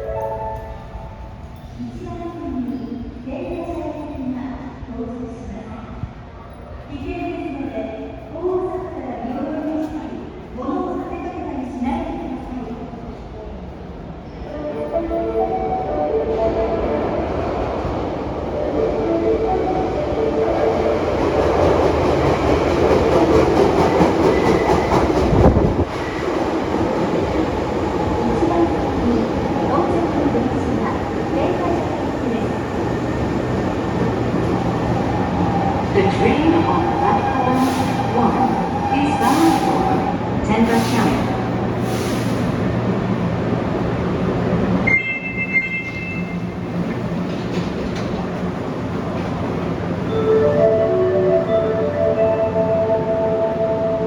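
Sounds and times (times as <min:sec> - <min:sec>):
subway train rumbling: 0:00.0 - 0:54.0
high train squeal: 0:34.7 - 0:42.6.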